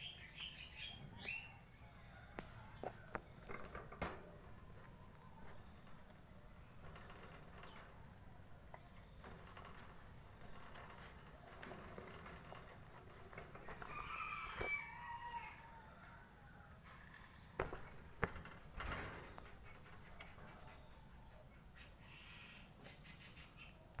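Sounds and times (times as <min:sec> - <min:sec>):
faint rooster crowing: 0:01.0 - 0:03.7, 0:13.3 - 0:17.9.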